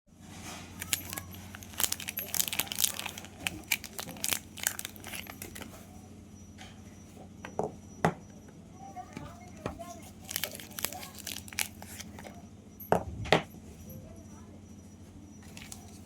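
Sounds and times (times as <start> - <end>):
soap wrapper crinkling and tearing: 0.8 - 5.7, 10.0 - 12.2.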